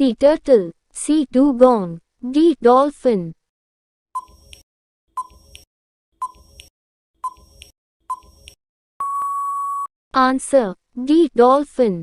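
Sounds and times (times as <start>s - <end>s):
timer ticking: 5.2s - 8.6s
long steady beep: 9.0s - 9.9s.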